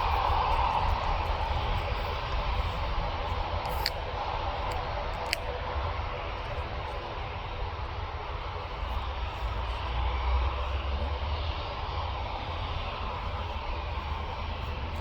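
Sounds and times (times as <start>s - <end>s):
distant jet engine: 0.0s - 15.0s
short clicks: 3.7s - 4.0s.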